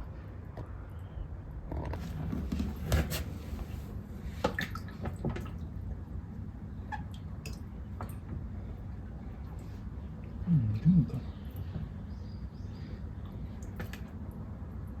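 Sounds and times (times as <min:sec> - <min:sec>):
small water splashes: 0:04.2 - 0:08.5, 0:13.2 - 0:15.0
light clicks against tub: 0:04.4 - 0:05.6, 0:13.2 - 0:14.2.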